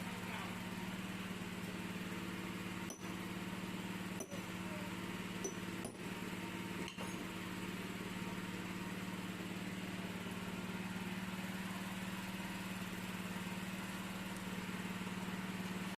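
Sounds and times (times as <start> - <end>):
rotary hammer motor humming: 1.6 - 8.8.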